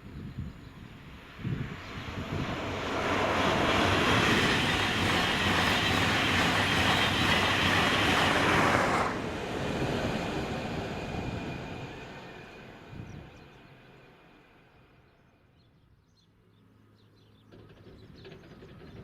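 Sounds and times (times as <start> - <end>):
train wheels rushing on rail: 1.0 - 14.4, 17.5 - 19.0.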